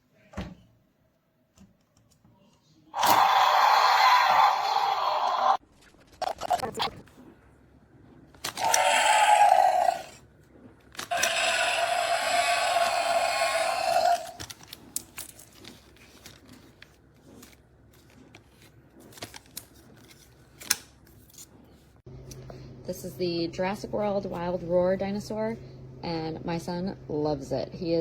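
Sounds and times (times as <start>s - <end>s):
toy dinosaur electronic roar: 3.0s - 5.6s, 8.5s - 10.2s, 11.1s - 14.4s.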